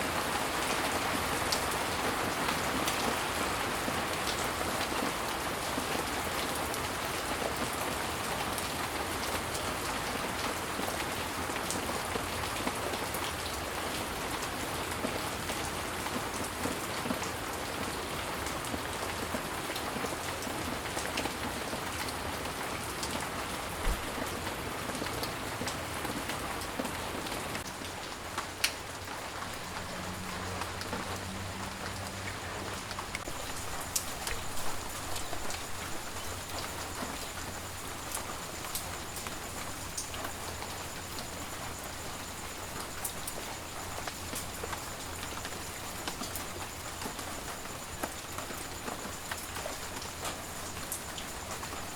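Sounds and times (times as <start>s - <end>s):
steady rain: 0.0s - 51.9s.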